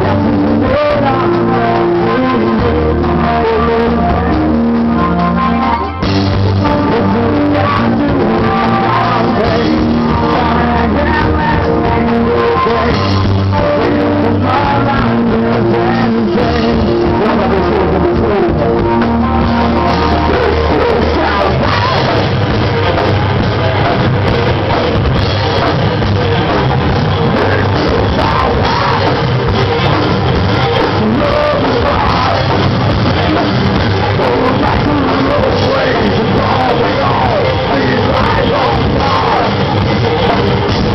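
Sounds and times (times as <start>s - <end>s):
person singing: 0.0s - 40.9s
rock band playing live: 0.0s - 40.9s.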